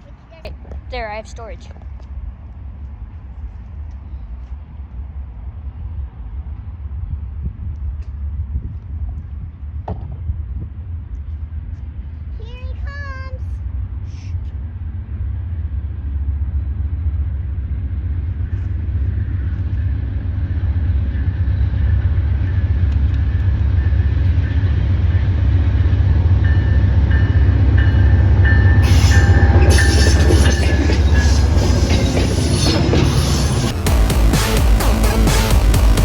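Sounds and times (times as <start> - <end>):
diesel locomotive engine rumble: 0.0 - 36.0
high-pitched wheel and rail noise: 16.3 - 36.0.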